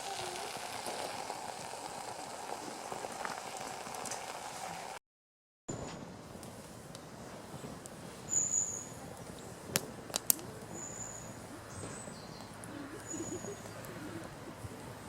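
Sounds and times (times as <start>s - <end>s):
high-pitched bird calls: 10.7s - 14.4s.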